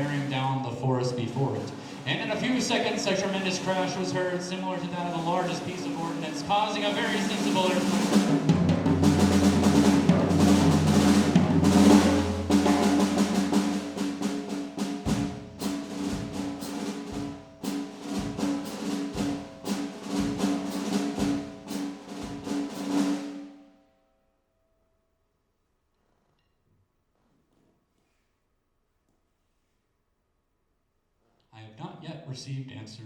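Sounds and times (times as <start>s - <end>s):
bass drum strokes: 0.0s - 23.2s
drum kit played loudly: 0.0s - 23.6s.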